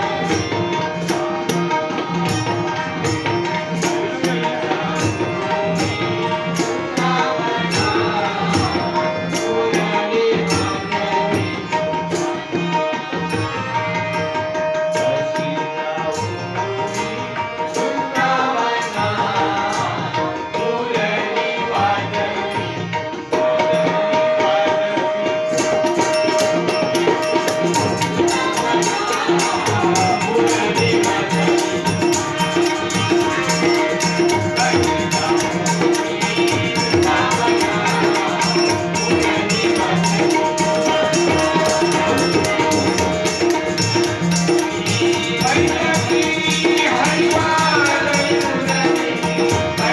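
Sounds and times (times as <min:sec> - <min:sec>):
person singing: 0:23.3 - 0:49.9
hand drum rhythm: 0:25.6 - 0:49.9
small hand cymbals: 0:25.6 - 0:49.9.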